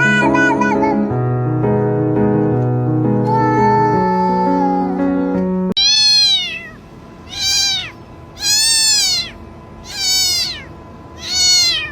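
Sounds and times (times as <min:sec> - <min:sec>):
cat meowing: 0:05.8 - 0:11.9.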